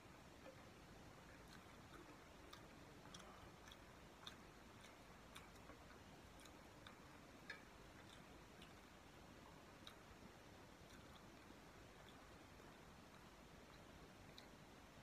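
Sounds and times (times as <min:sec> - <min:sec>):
low hiss: 0:00.0 - 0:15.0
chewing mouth clicks: 0:00.4 - 0:15.0.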